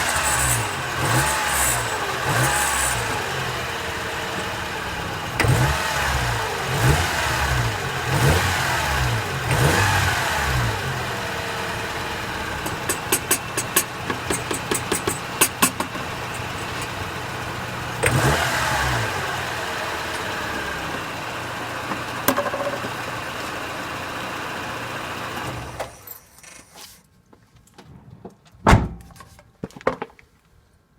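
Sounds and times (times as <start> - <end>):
engine revving with hissy rasp: 0.0 - 22.2
car engine idling: 0.0 - 25.8
small knocks: 12.6 - 17.0
loud thump: 28.6 - 29.2.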